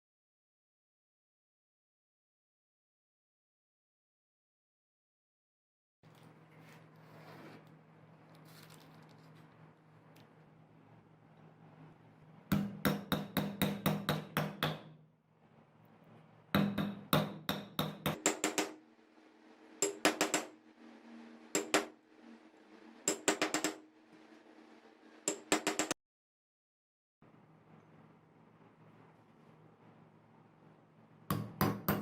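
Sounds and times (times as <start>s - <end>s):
hammer tapping: 12.5s - 14.9s, 16.6s - 18.8s, 19.8s - 20.6s, 21.6s - 21.9s, 23.1s - 23.8s, 25.3s - 26.0s, 31.3s - 32.0s.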